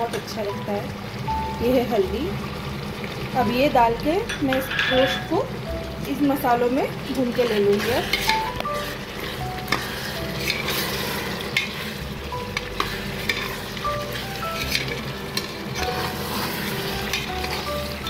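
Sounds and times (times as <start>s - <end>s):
meat frying and sizzling in oil: 0.0s - 18.0s
metal spatula scraping a pan: 4.5s - 5.3s, 7.4s - 18.0s.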